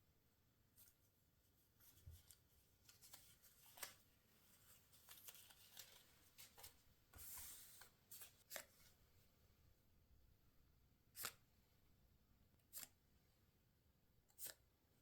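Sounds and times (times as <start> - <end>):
paper rustling and crinkling: 1.8 - 9.0.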